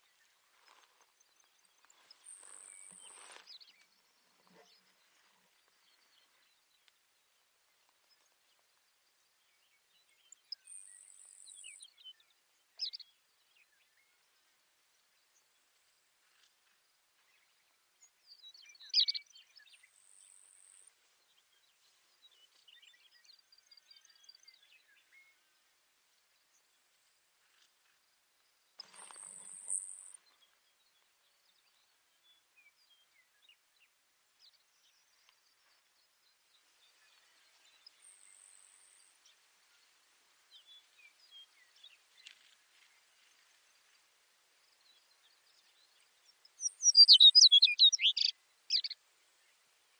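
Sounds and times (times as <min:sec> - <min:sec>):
soft steady hiss: 0:00.0 - 0:49.9
sparrow trilling and chirping: 0:18.8 - 0:19.3, 0:28.8 - 0:30.3, 0:46.3 - 0:49.0.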